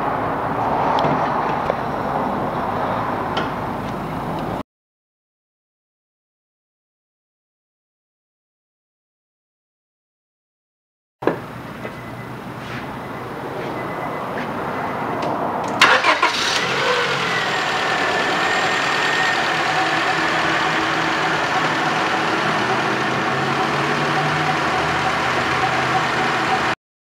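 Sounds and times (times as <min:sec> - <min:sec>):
car engine starting: 0:15.2 - 0:26.8
car engine idling: 0:15.6 - 0:26.8.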